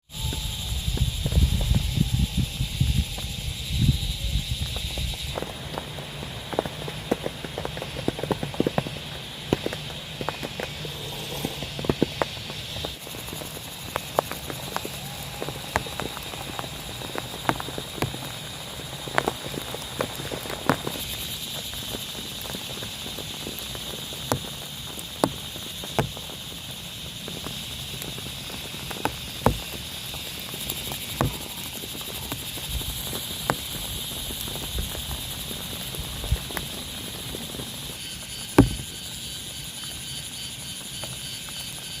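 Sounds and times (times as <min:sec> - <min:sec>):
rain on a tent: 0:00.0 - 0:42.0
heavy drops tapping fabric: 0:38.6 - 0:38.9.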